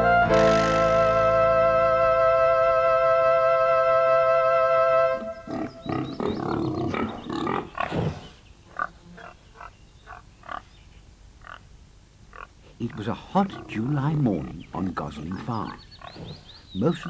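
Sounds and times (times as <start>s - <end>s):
held musical chord: 0.0s - 5.5s
pigs grunting: 5.4s - 9.4s, 12.4s - 17.0s.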